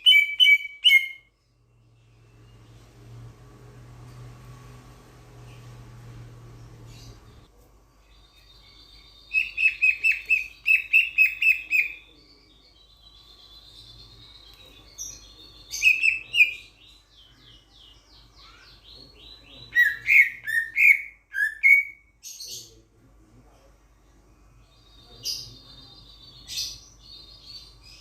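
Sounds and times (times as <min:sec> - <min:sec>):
starling singing: 0:00.0 - 0:01.3, 0:08.2 - 0:22.7.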